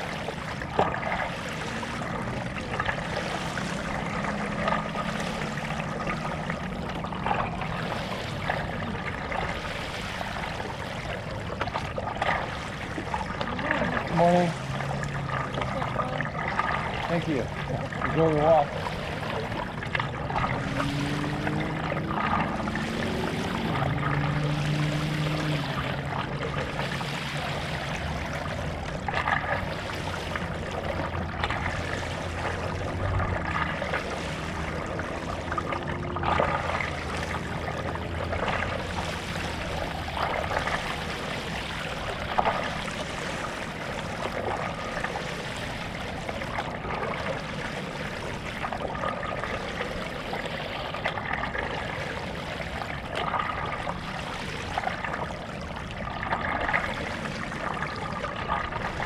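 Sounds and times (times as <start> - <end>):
paddle strokes splashing water: 0.0 - 59.0.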